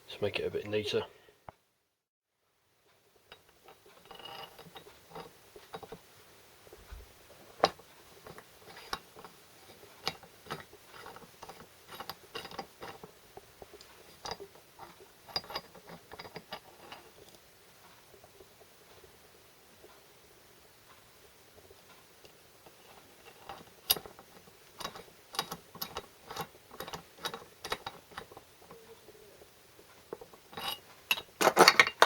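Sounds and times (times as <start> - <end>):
small metal parts clicking: 10.0 - 13.1, 23.2 - 28.8, 30.1 - 32.0.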